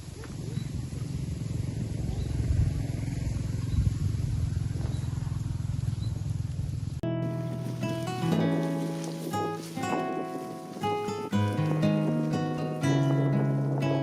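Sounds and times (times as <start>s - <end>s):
low rumble with rapid flutter: 0.0s - 7.8s
acoustic guitar music: 7.0s - 14.0s.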